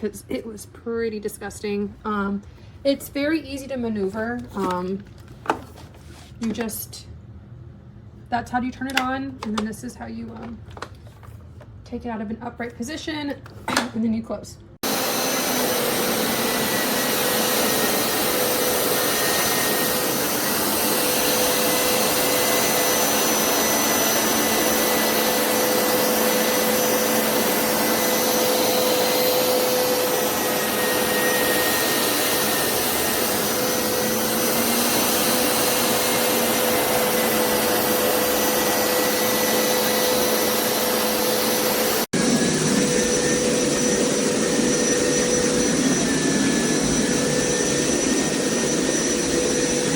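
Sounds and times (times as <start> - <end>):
carpet cleaner motor whining: 14.8 - 49.9.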